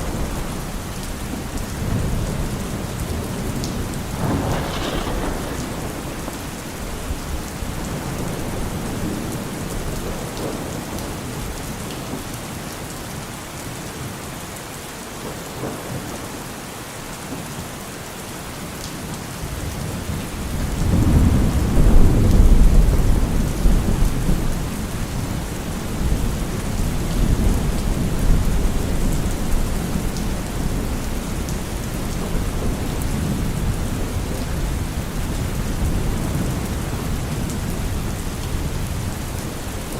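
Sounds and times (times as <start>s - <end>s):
thunder rumbling: 0.0s - 11.5s, 19.6s - 39.9s
rain falling through trees: 0.0s - 39.9s.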